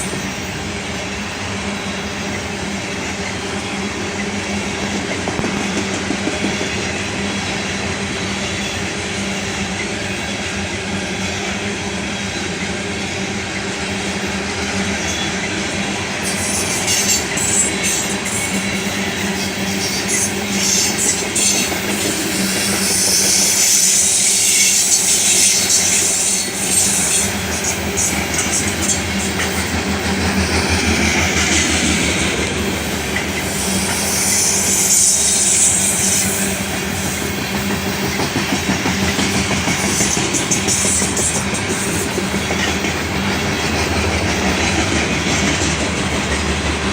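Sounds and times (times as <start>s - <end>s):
train wheels clacking on rails: 0.0s - 46.9s
wheels squealing: 16.2s - 38.3s.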